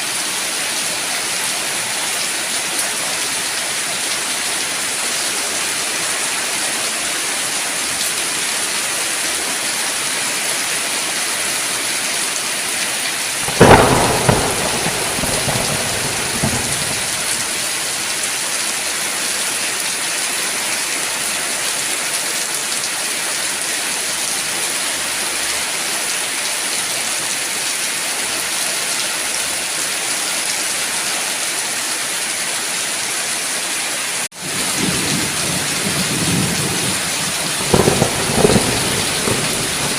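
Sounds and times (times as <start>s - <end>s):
steady rain falling: 0.0s - 39.9s
thunderclap rumbling: 13.4s - 18.1s, 34.4s - 39.9s.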